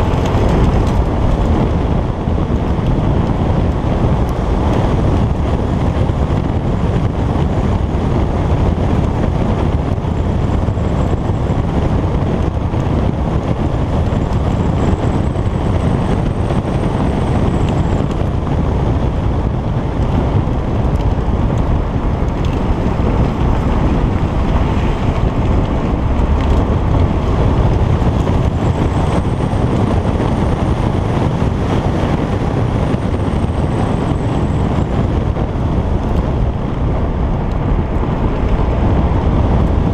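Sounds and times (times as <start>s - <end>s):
car engine pulling: 0.0s - 6.9s, 9.8s - 39.9s
wind buffeting microphone: 0.0s - 39.9s.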